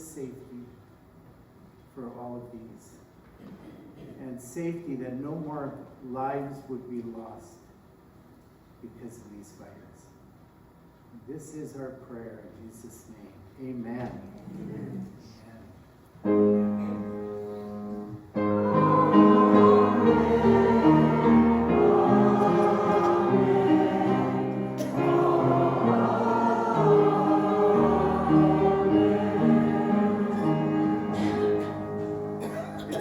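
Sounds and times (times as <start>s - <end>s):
choir singing a hymn: 16.6s - 33.0s.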